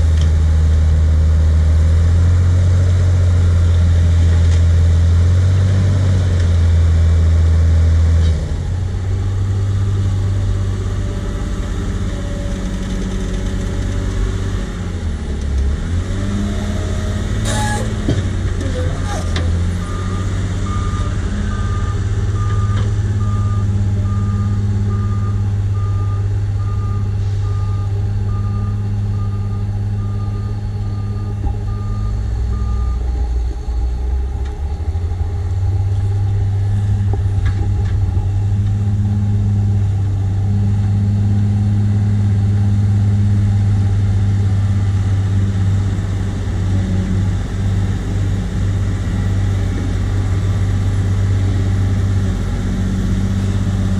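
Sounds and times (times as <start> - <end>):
diesel engine running under load: 0.0 - 53.9
reversing alarm beeping: 17.4 - 17.9, 19.8 - 34.0.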